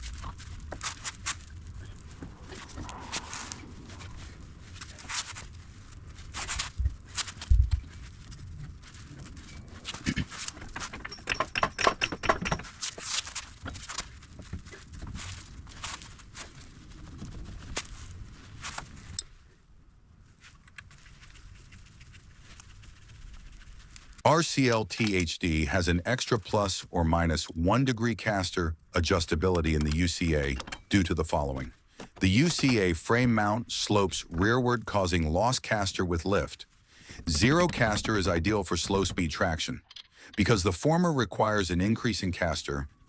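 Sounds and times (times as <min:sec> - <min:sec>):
tools knocking and clanking: 0:10.2 - 0:12.9, 0:30.6 - 0:30.9.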